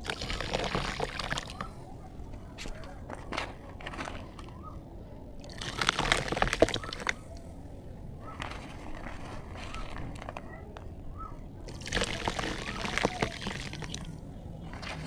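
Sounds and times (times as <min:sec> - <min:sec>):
water sloshing and splashing: 0:00.0 - 0:01.9, 0:05.4 - 0:07.4, 0:11.6 - 0:15.0.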